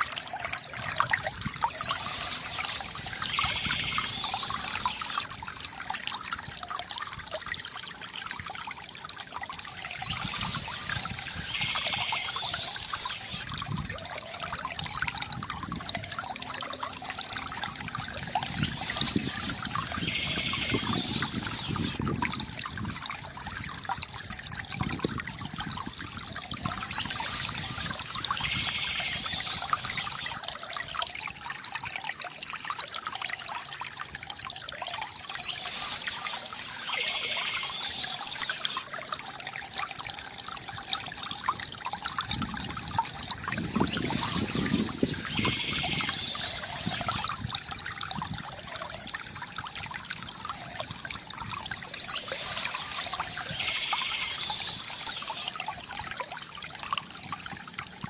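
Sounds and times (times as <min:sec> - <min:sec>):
stream trickling over stones: 0:00.0 - 0:58.0
songbird trill: 0:01.6 - 0:05.3, 0:09.7 - 0:13.5, 0:18.2 - 0:22.0, 0:26.6 - 0:30.4, 0:35.1 - 0:38.8, 0:43.6 - 0:47.3, 0:51.8 - 0:55.6.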